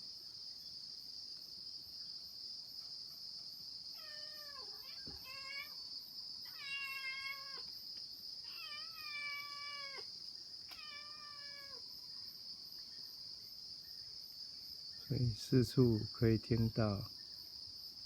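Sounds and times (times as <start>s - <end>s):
insects trilling: 0.0s - 18.0s
cat meowing: 4.0s - 5.8s, 6.4s - 7.7s, 8.4s - 10.1s, 10.7s - 11.8s.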